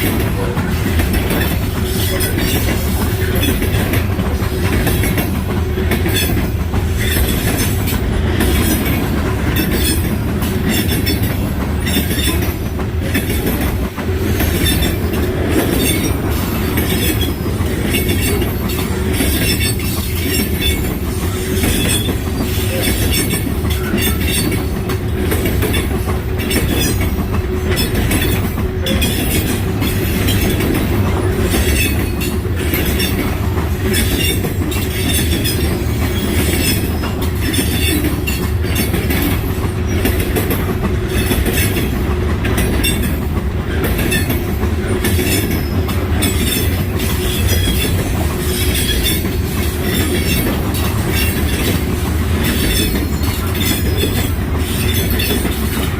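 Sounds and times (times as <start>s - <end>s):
train cars rumbling: 0.0s - 55.9s
wheels clickety-clack over rail joints: 0.0s - 55.9s
wheels squealing: 43.9s - 51.8s.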